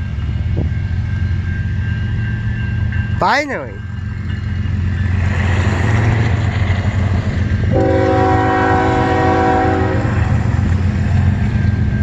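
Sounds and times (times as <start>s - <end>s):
train rumbling by: 0.0s - 12.0s
locomotive air horn chord: 7.7s - 10.4s.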